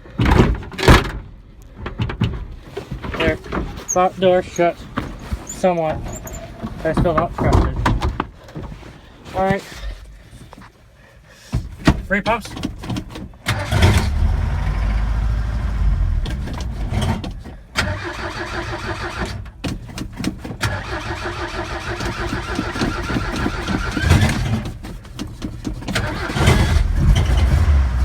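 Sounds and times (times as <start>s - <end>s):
loose parts rattling: 0.1s - 10.7s, 22.0s - 27.4s
pickup engine cranking and starting: 13.3s - 28.0s
gas pedal pumping: 19.1s - 27.4s.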